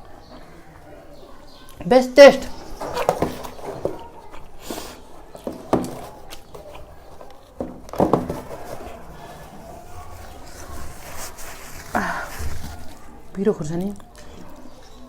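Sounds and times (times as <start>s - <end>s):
person chewing food: 2.9s - 7.7s.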